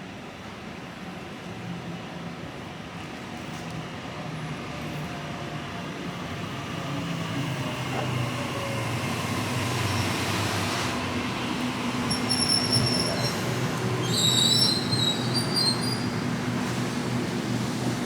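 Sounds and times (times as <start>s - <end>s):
electric train rumbling: 3.9s - 18.0s.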